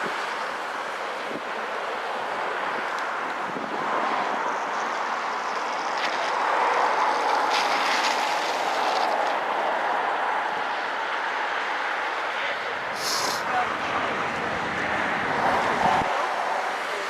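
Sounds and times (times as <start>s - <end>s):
wind noise on microphone: 0.0s - 1.7s, 2.5s - 5.2s, 13.0s - 16.3s.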